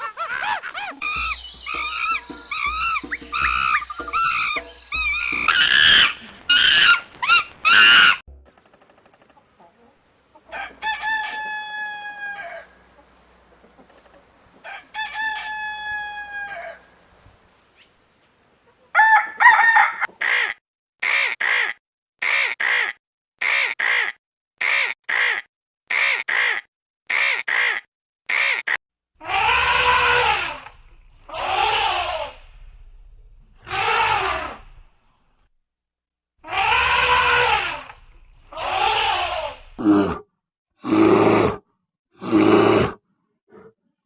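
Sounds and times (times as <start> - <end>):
animal calls: 0.0 - 8.2, 19.8 - 32.5, 33.6 - 34.8, 36.4 - 40.2.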